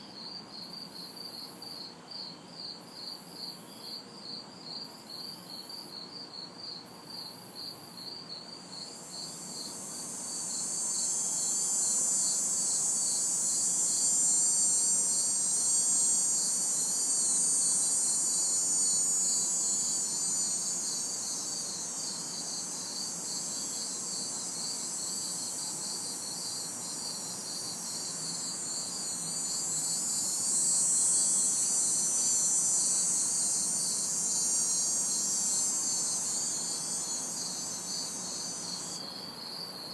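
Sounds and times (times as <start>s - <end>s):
cicada buzz: 0.0s - 39.9s
crickets chirping: 0.0s - 39.9s.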